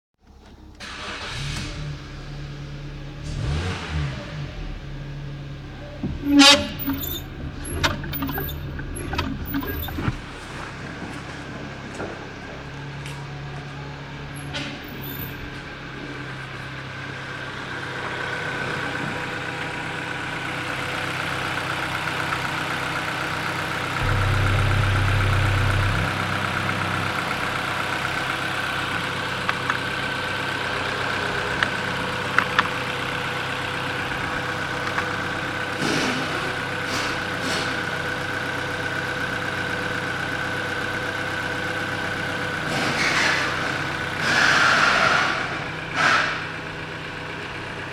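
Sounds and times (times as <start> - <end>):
car engine idling: 0.3 - 47.9
sharp clicks: 6.4 - 10.2.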